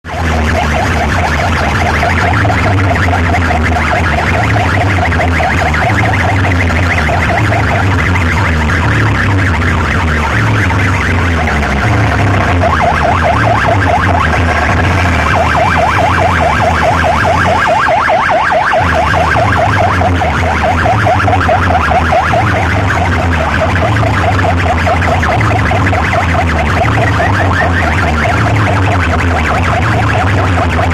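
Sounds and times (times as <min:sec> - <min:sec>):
heavy pulsing bass: 0:00.0 - 0:30.9
warbling siren-like effect: 0:00.0 - 0:30.9.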